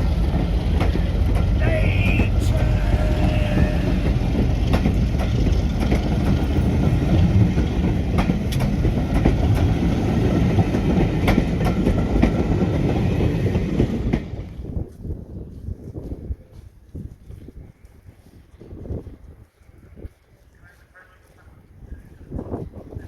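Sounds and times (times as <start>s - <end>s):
wheels clicking over rail joints: 0.0s - 1.6s, 2.3s - 14.5s
train rumbling: 0.0s - 14.9s.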